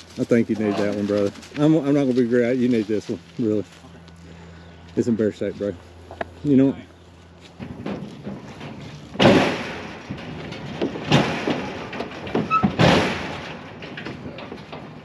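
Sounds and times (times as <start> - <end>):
knocks and thuds: 7.6 - 15.0.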